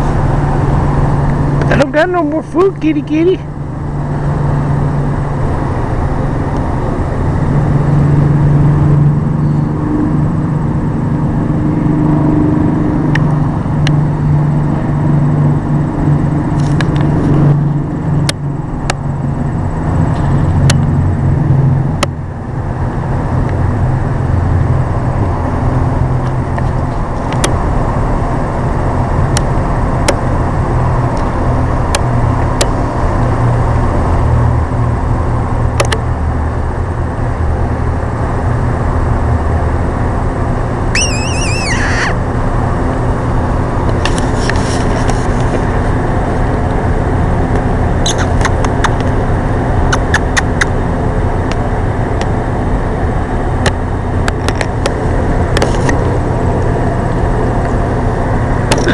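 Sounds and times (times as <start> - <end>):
engine rumble: 0.0 - 58.9
sharp clicks: 41.0 - 42.2, 50.0 - 50.7.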